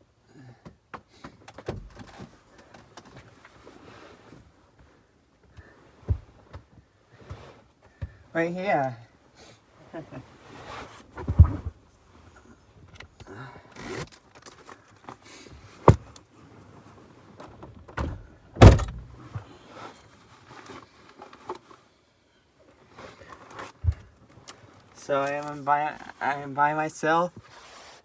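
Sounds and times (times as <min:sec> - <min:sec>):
knocks and thumps inside a car: 0:00.6 - 0:03.3, 0:05.9 - 0:08.2, 0:15.8 - 0:16.2, 0:17.4 - 0:19.4, 0:23.8 - 0:24.2.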